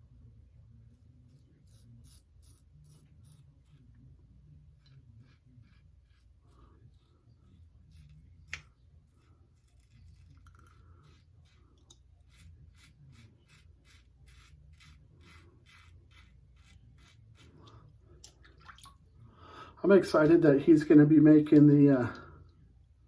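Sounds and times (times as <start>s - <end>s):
razor scraping stubble: 1.0s - 17.9s.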